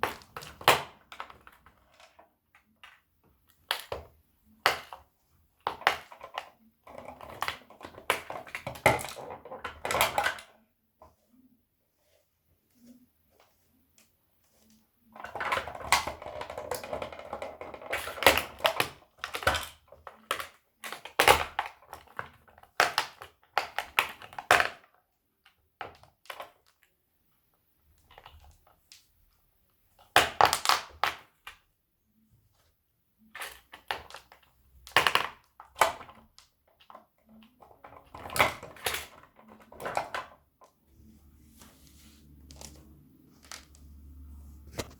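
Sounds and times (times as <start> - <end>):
plastic toys cracking underfoot: 0.0 - 10.6, 15.1 - 26.9, 30.0 - 31.6, 33.3 - 40.8.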